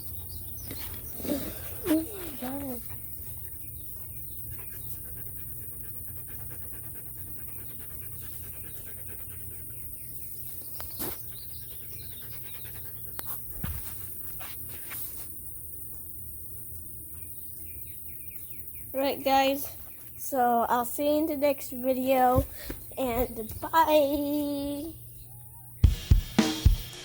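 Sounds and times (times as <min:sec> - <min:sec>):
dog panting: 0:00.0 - 0:10.5, 0:11.2 - 0:14.7.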